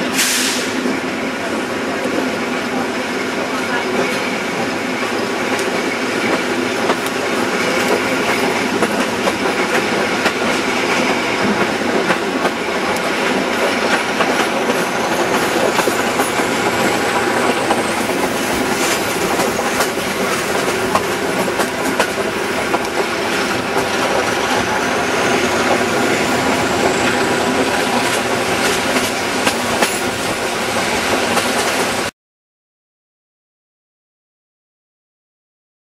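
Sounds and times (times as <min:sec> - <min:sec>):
diesel locomotive drone: 0:00.0 - 0:32.1
wheels clicking over rail joints: 0:07.8 - 0:31.9.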